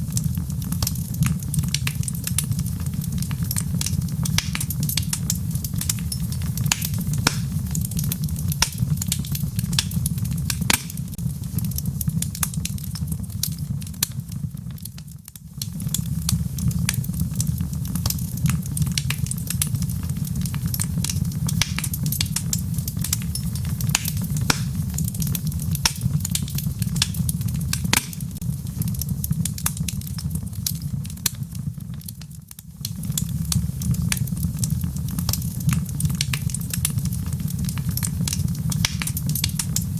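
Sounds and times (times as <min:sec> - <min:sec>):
logs crackling and popping: 0:00.0 - 0:39.9
low rumble of flames: 0:00.0 - 0:39.9.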